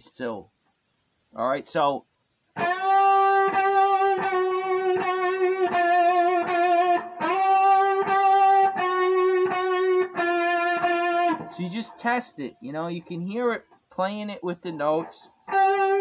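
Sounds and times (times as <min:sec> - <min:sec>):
electric guitar string bends: 0:14.8 - 0:16.0.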